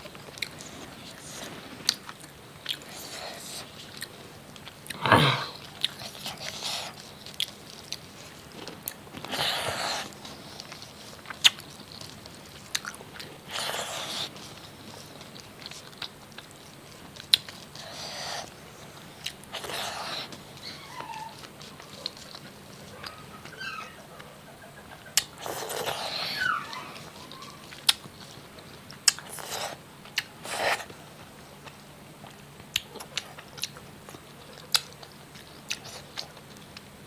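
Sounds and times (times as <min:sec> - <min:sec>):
person chewing and biting: 0:00.0 - 0:23.6, 0:25.1 - 0:26.4, 0:27.0 - 0:36.9
crunching food: 0:00.0 - 0:37.0.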